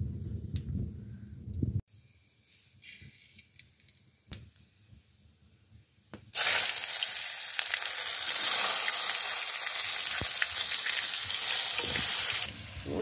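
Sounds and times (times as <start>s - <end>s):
vegetables sizzling in hot oil: 6.4s - 13.0s.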